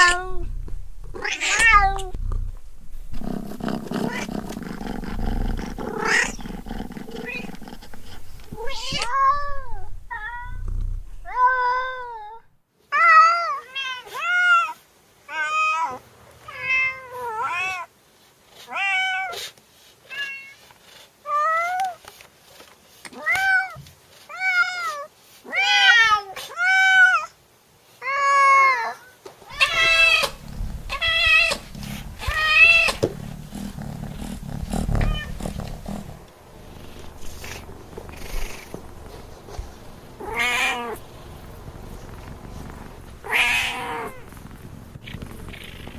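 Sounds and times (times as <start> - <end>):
cat meowing: 0.0 - 0.5, 1.1 - 2.2, 3.9 - 4.4, 5.9 - 6.4, 8.6 - 10.6, 28.0 - 36.1, 40.2 - 41.0, 43.2 - 44.3
low rumble: 0.0 - 11.4, 29.6 - 45.9.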